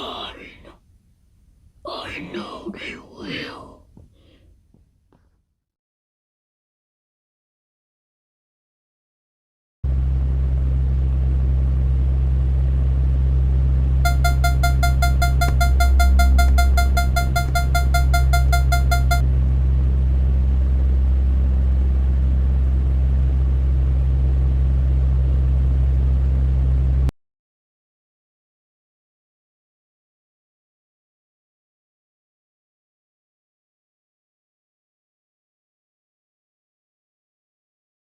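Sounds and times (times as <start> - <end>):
fast high beeps: 14.1 - 19.2
low electronic drone: 14.1 - 19.2.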